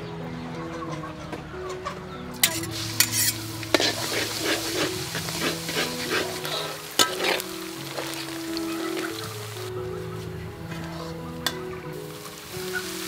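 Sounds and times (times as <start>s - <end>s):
ladle clinking against wok: 2.4s - 7.5s
food sizzling in hot oil: 2.4s - 9.8s, 11.4s - 13.0s.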